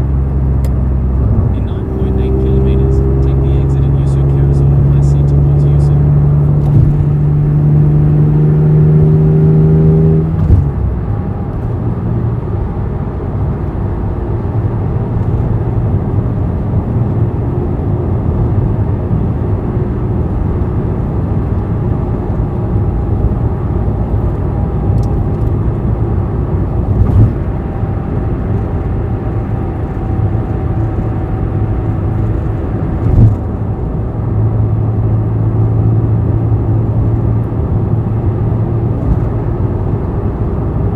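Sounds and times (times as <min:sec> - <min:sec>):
sports car engine running: 0:00.0 - 0:40.9
brief knocks: 0:06.6 - 0:07.2.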